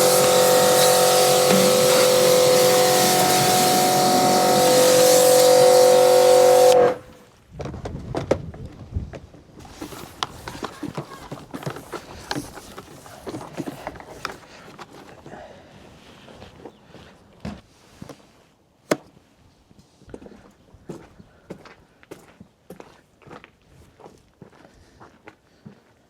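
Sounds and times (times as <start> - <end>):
pressure washer spraying: 0.0 - 7.1.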